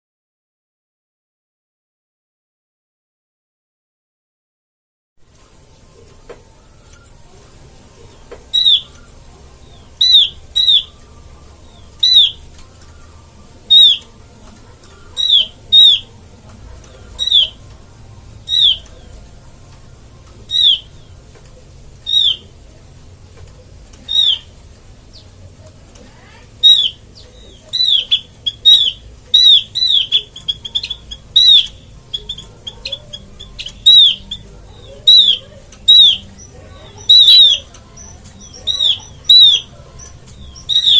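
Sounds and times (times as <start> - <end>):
bird call sharp high notes: 27.8 - 32.4, 33.1 - 39.7.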